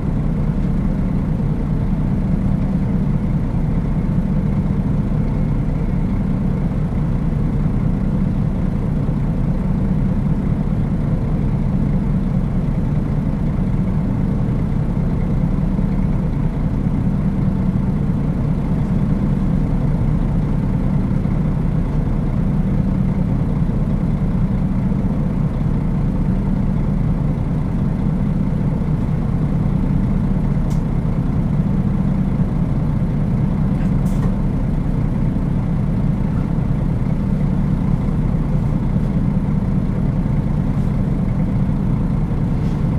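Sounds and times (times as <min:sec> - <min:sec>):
bus diesel engine running: 0:00.0 - 0:42.9
faint light ticks: 0:30.7 - 0:30.9.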